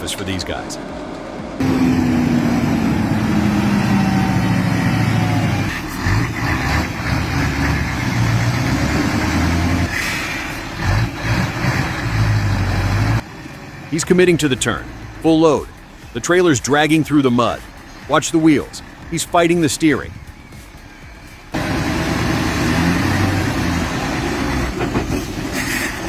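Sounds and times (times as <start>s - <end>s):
heavy diesel engine running: 0.0s - 26.0s
rumble and knocks: 23.4s - 26.0s.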